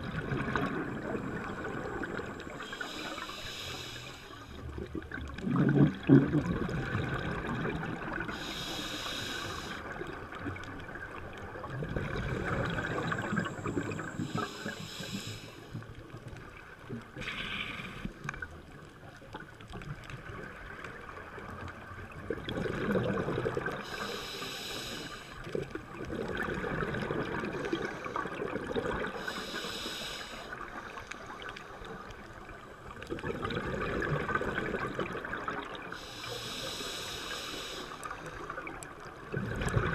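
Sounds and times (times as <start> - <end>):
bubbles gurgling underwater: 0.0 - 2.8, 4.6 - 8.4, 9.8 - 14.7, 18.2 - 23.9, 25.4 - 29.3, 30.8 - 36.0, 38.1 - 39.9
regulator inhalation hiss: 2.4 - 4.6, 8.3 - 9.9, 13.0 - 15.8, 23.8 - 25.4, 29.2 - 30.8, 36.0 - 38.3.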